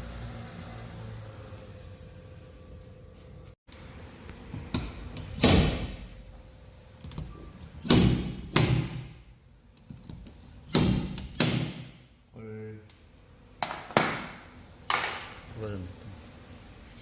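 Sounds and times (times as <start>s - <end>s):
tools striking metal panel: 7.8s - 9.2s.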